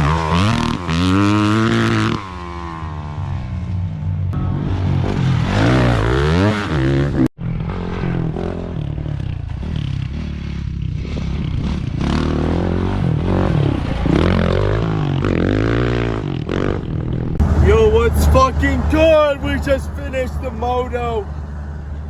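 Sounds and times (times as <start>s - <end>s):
dirt bike engines revving: 17.4s - 22.0s.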